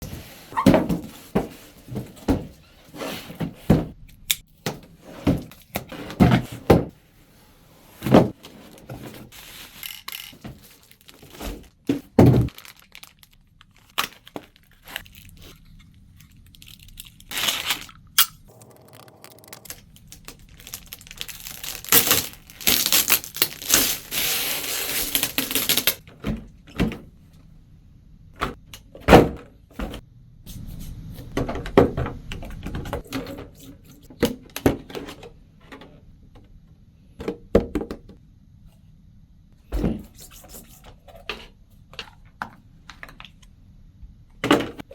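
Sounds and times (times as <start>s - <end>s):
packaging rustling: 8.7s - 11.7s, 12.5s - 26.0s.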